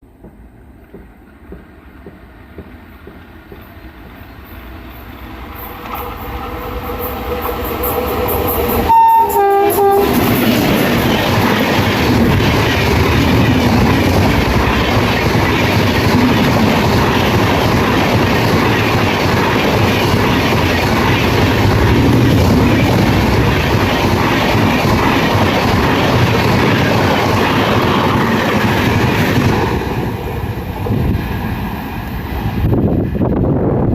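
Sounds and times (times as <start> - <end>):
train passing with rush: 0.0 - 33.9
rail clatter: 0.2 - 33.5
train horn: 5.6 - 10.4.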